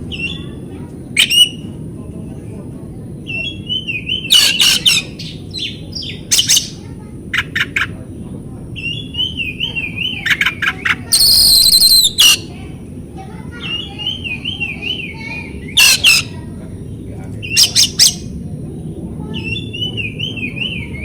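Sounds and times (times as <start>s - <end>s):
harsh rasping bird call: 11.1s - 12.5s
bird warbling song: 11.2s - 12.5s
sharp chipping bird notes: 11.2s - 12.5s.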